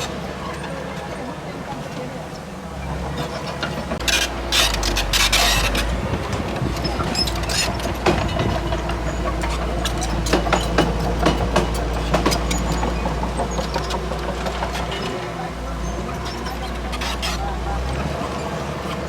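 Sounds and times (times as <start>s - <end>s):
bulldozer diesel engine running: 0.0s - 19.0s
metallic clanks and knocks: 3.6s - 15.2s.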